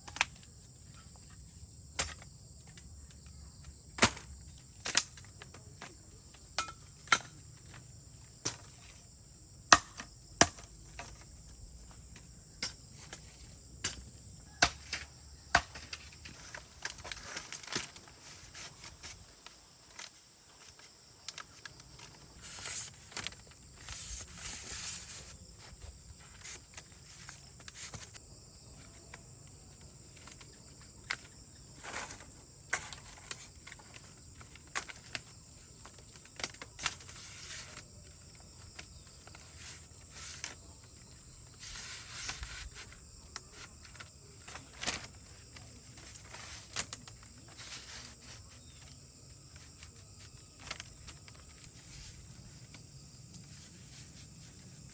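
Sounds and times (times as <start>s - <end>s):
high insect drone: 0.0s - 54.9s
rustling: 15.9s - 54.9s.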